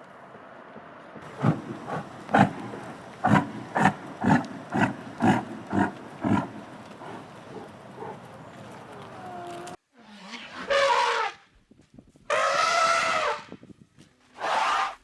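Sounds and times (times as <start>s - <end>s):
animal calling: 1.2s - 9.8s.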